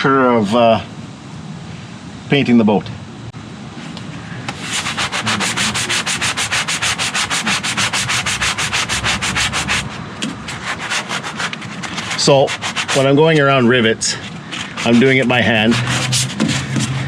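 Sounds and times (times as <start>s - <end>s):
sandpaper scrubbing on metal: 4.5s - 17.0s.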